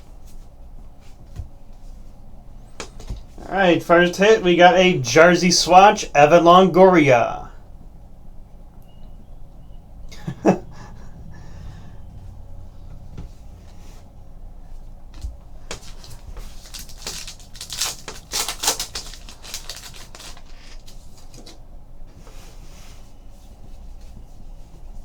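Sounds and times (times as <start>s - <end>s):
card wrappers rustling and crinkling: 15.2s - 21.6s.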